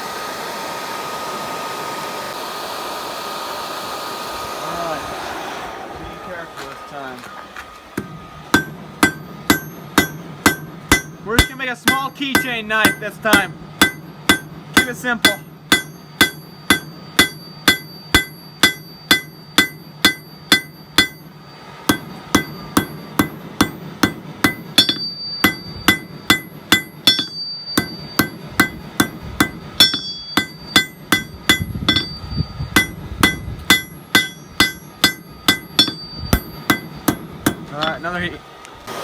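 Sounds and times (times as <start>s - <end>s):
hammer striking steel on anvil: 8.0s - 38.2s.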